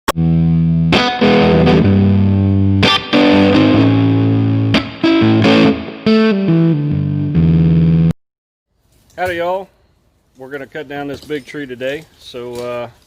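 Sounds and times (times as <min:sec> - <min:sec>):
distorted electric guitar riff: 0:00.1 - 0:08.2.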